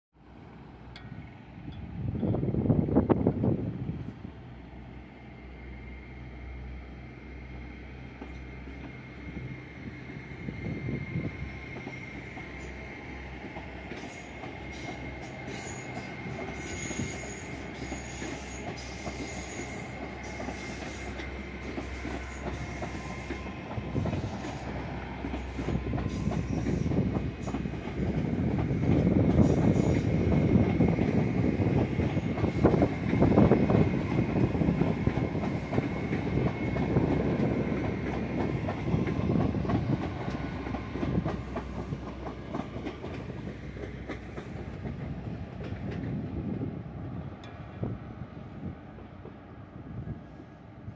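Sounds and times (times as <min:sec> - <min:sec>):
train engine low rumble: 0:00.2 - 0:50.9
high steady squeal: 0:14.0 - 0:27.6.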